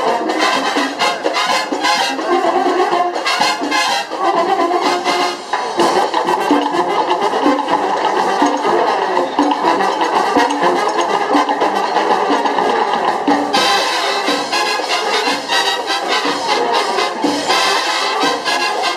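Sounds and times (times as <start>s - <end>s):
brass melody: 0.0s - 18.9s
steady drum beat: 0.0s - 18.9s.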